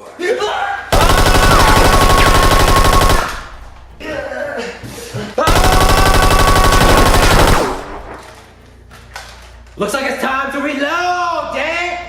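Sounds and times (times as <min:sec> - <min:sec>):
toy blaster firing full-auto: 0:01.0 - 0:03.6, 0:05.5 - 0:08.2.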